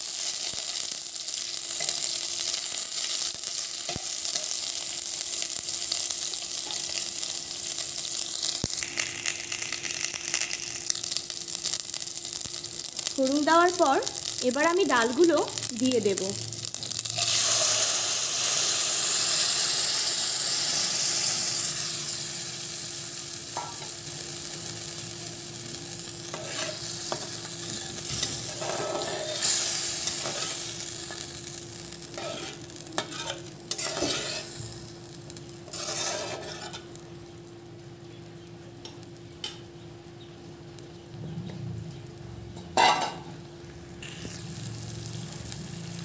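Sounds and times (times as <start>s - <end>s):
food sizzling in hot oil: 0.0s - 46.0s
spatula scraping pan: 32.1s - 34.5s, 35.7s - 36.9s.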